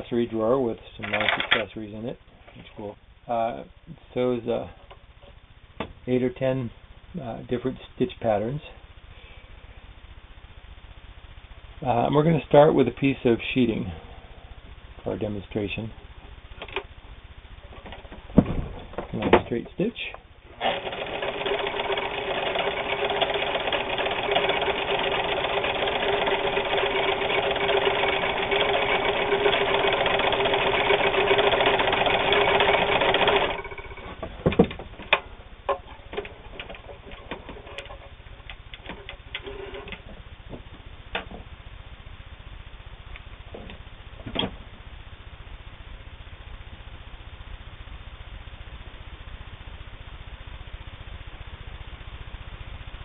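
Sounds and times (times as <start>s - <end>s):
sewing machine stitching: 20.5s - 34.1s.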